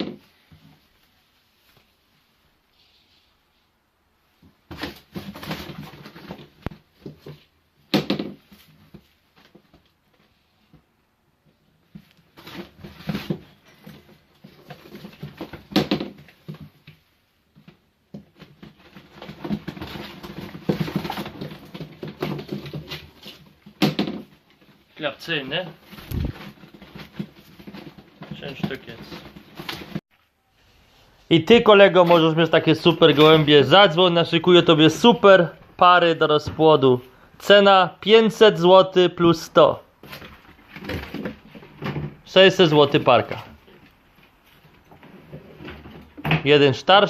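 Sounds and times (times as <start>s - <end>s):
rustling and scuffling in box: 4.4s - 7.6s, 11.8s - 24.9s, 25.7s - 30.0s.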